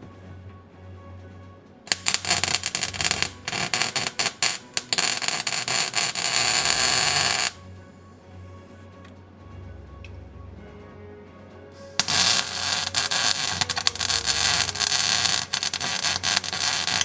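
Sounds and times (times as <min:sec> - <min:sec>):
arc welder crackling: 0:01.9 - 0:07.6, 0:11.8 - 0:17.0.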